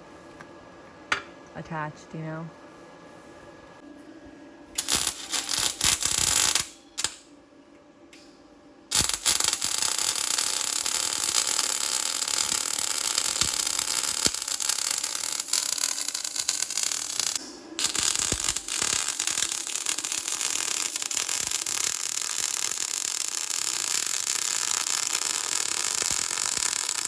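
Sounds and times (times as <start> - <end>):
electric arc welding crackling hiss: 4.8 - 7.2, 8.9 - 27.0.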